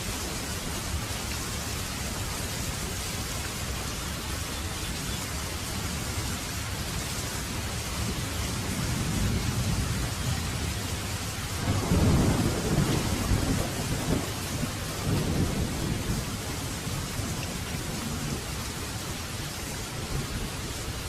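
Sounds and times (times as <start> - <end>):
heavy rain: 0.0 - 21.0
thunder rumbling: 7.5 - 18.6.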